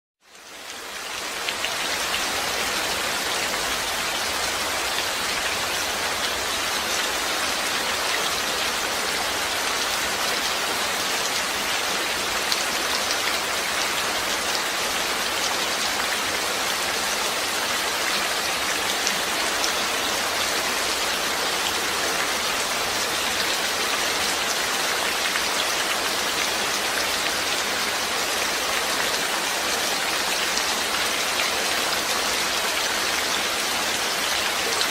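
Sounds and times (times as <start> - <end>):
steady rain falling: 0.2 - 34.9.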